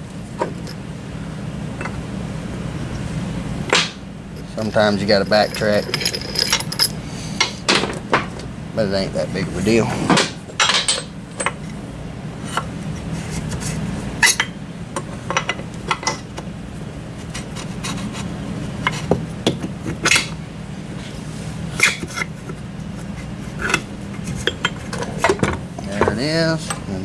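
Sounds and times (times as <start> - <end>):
steady low hum: 0.0 - 19.4
metal parts clinking and scraping: 4.6 - 7.1.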